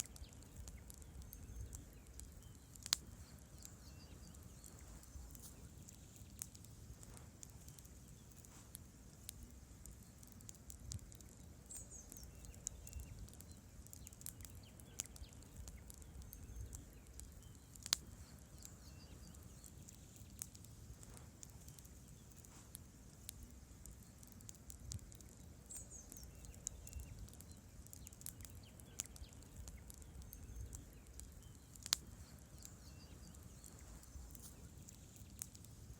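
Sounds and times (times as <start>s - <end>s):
logs crackling and popping: 0.0s - 35.9s
low rumble of flames: 0.0s - 35.9s.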